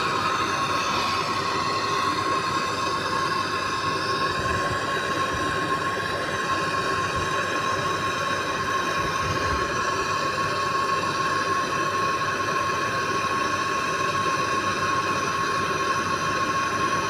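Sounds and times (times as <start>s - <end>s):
torch flame hissing roar: 0.0s - 11.4s.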